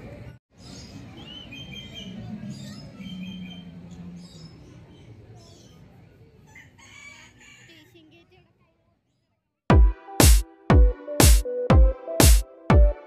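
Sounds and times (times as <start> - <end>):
birds chirping: 0.5 - 6.2.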